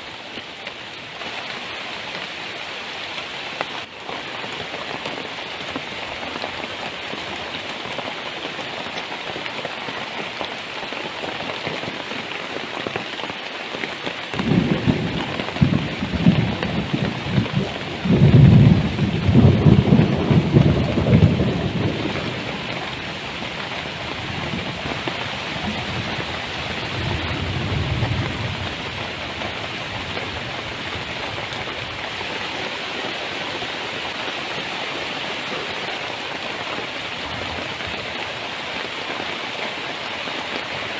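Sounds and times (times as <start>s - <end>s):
heavy rain pouring: 0.0s - 40.9s
thunder rumble: 14.3s - 31.9s.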